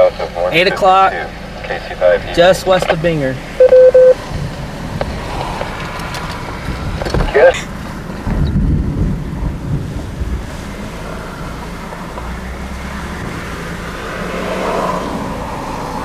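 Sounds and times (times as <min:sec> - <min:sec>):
vehicle rumbling: 0:00.0 - 0:16.0
wind noise on microphone: 0:04.2 - 0:13.7.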